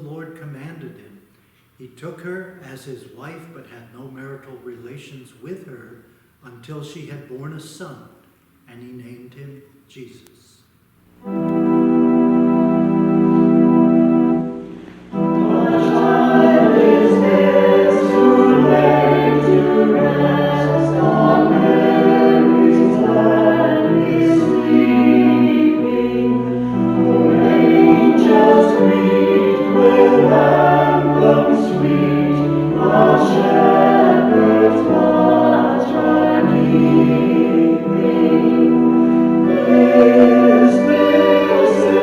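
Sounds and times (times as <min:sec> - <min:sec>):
organ chord: 0:11.1 - 0:42.0
choir singing a hymn: 0:11.2 - 0:42.0.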